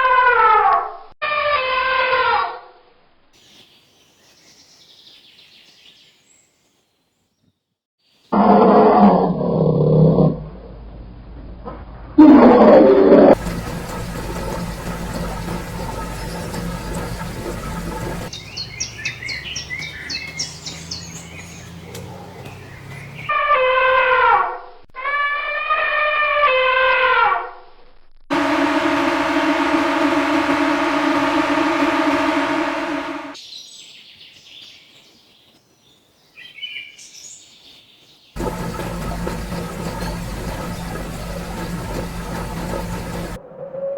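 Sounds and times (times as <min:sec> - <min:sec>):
loud steady tone: 0:13.3 - 0:18.3, 0:28.3 - 0:33.4, 0:38.4 - 0:43.4
steady low hum: 0:13.3 - 0:18.3, 0:28.3 - 0:33.4, 0:38.4 - 0:43.4.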